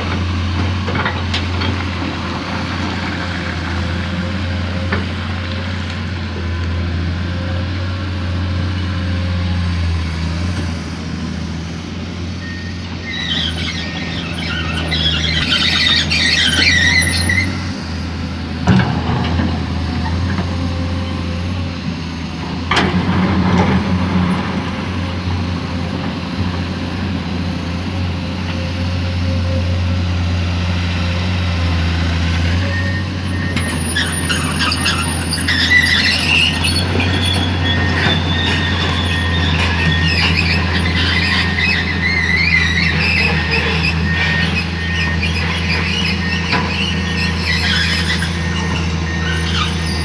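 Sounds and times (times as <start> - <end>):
excavator diesel engine running: 0.0 - 50.0
high squeals: 12.3 - 18.6, 32.6 - 50.0.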